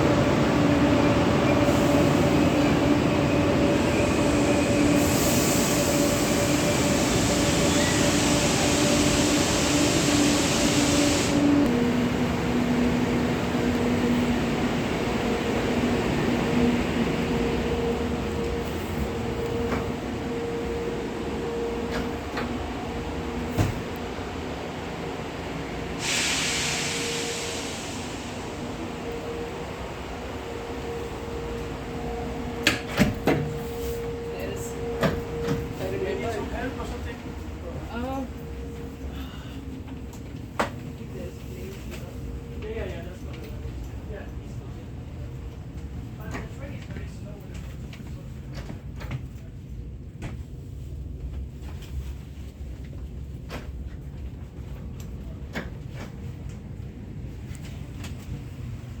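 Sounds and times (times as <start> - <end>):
high-speed train rushing: 0.0 - 59.0
loud hiss: 4.0 - 11.6, 26.0 - 28.7.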